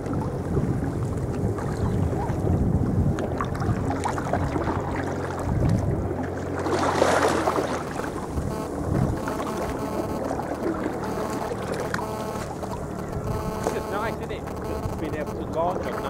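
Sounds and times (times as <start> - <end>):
wind buffeting microphone: 0.0 - 9.4
water sloshing around kayak: 0.0 - 16.0.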